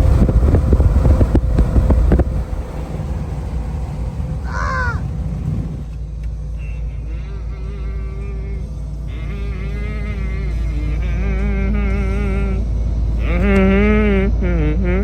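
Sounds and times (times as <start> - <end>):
sharp rattles and knocks: 0.0 - 6.0
truck road rumble: 0.0 - 15.0
call with bending pitch: 2.1 - 6.0.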